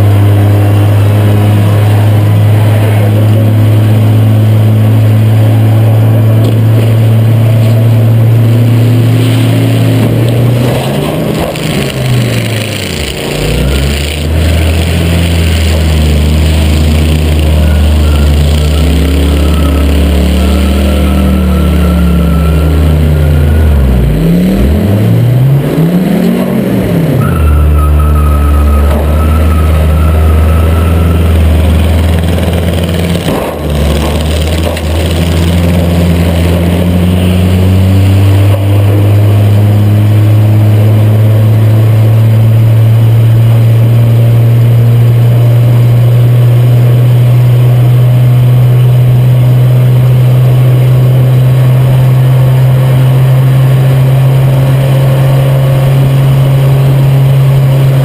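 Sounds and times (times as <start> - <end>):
race car engine revving: 0.0 - 58.0
faint high whine: 13.4 - 24.4, 27.2 - 32.4.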